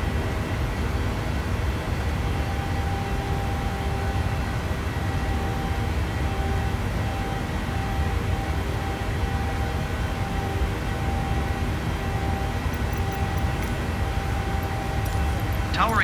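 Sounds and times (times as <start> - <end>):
aircraft engines roaring: 10.0 - 16.0
faint steady whine: 10.6 - 16.0.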